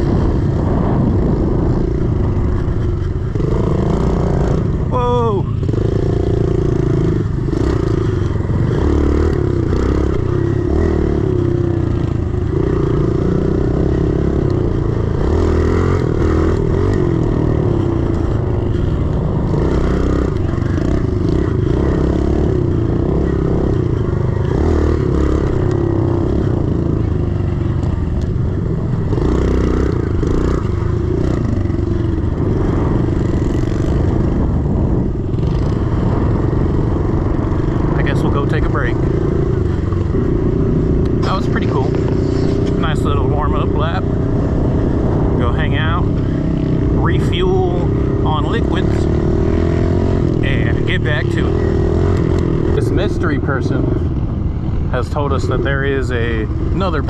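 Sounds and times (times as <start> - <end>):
motorbike engine revving: 0.0 - 57.0.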